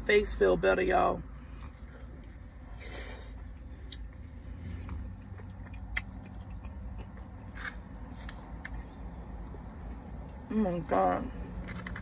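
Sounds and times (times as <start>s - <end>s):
low steady hum: 0.0s - 12.0s
person chewing food: 1.4s - 2.6s, 3.2s - 10.5s
wet mouth clicks: 5.5s - 7.3s.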